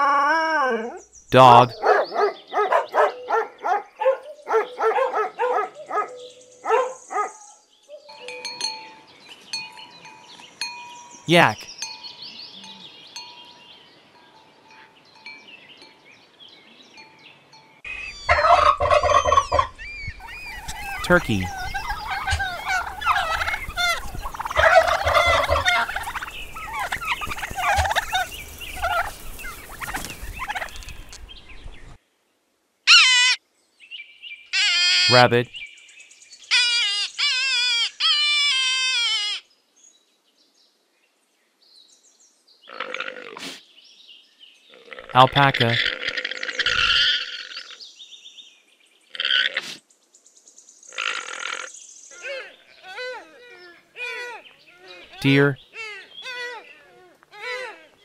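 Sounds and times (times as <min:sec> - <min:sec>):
small birds chirping: 0:00.6 - 0:32.0, 0:39.3 - 0:58.0
animal crying: 0:18.2 - 0:29.1, 0:32.9 - 0:33.4, 0:34.5 - 0:35.2, 0:36.5 - 0:39.4, 0:45.8 - 0:47.8, 0:51.0 - 0:58.0.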